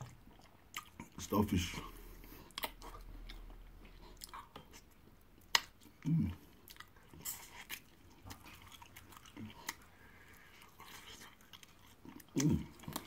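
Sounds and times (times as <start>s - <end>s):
person biting and chewing: 2.5s - 6.0s, 10.7s - 13.0s
wet mouth clicks: 5.4s - 5.8s.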